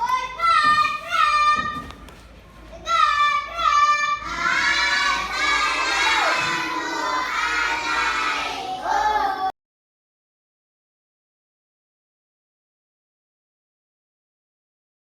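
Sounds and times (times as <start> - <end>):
children shouting: 0.0 - 1.9, 2.7 - 9.5.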